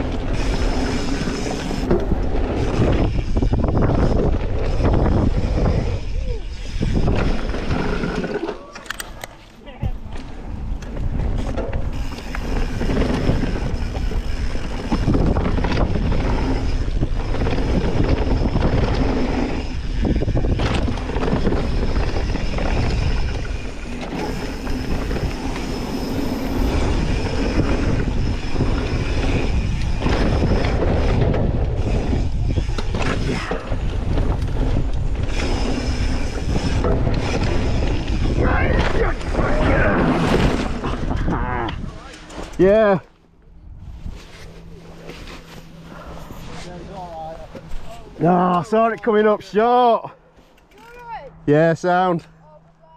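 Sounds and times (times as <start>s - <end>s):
bike tyres rumbling on dirt trail: 0.0s - 8.7s, 9.6s - 43.0s.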